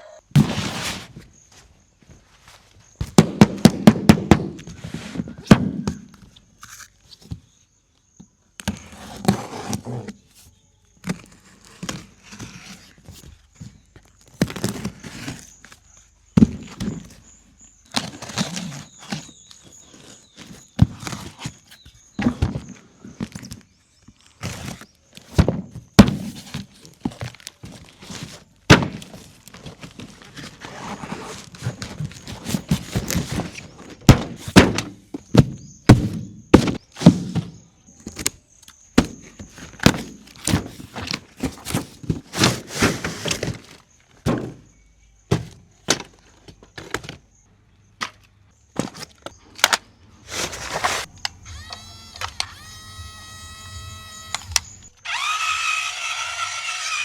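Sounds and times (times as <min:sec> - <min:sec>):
plastic toy scraping: 0:00.0 - 0:01.2, 0:08.8 - 0:10.3, 0:29.1 - 0:34.0, 0:40.4 - 0:43.9, 0:50.2 - 0:57.0
plastic toy knocks and thunks: 0:34.1 - 0:37.6, 0:44.2 - 0:44.7
faint thin high whine: 0:51.1 - 0:55.6.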